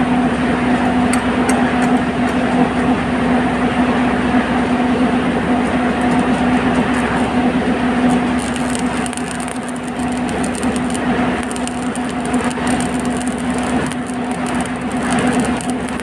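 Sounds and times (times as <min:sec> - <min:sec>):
welding machine humming: 0:00.0 - 0:16.0
welding crackling: 0:05.5 - 0:16.0.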